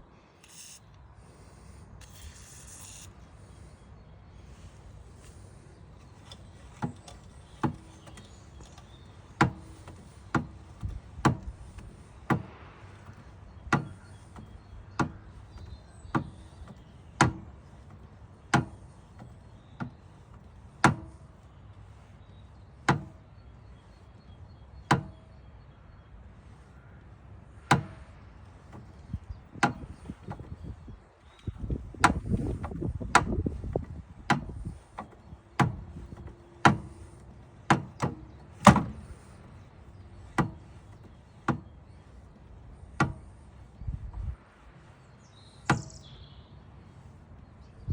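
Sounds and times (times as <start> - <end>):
sharp knocks: 6.1 - 21.3, 22.8 - 23.2, 24.9 - 25.2, 27.6 - 30.8, 31.4 - 42.2, 42.9 - 43.6, 45.7 - 46.0.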